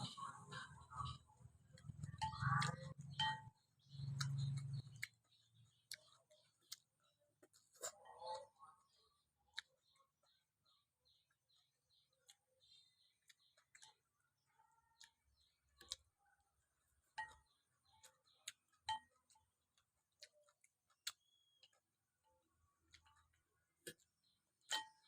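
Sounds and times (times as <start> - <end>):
faint high chirps: 20.2 - 23.3.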